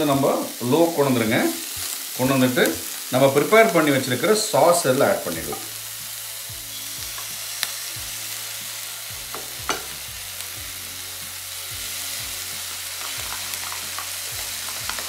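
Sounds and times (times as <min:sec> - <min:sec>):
stir fry sizzling in a wok: 0:00.0 - 0:15.0.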